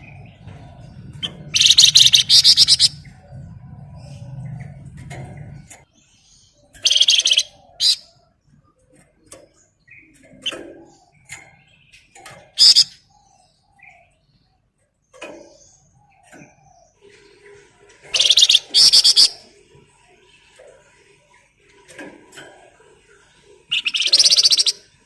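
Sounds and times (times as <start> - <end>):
songbird rapid chattering song: 0.0 - 8.6, 9.3 - 14.4, 18.1 - 20.6, 23.2 - 25.0
quiet bird chirps: 0.0 - 25.0.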